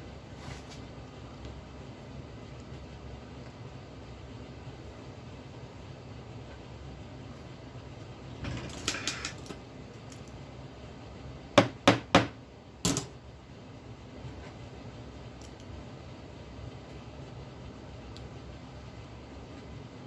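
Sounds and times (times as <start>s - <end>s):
metal tools rattling: 8.4s - 10.2s.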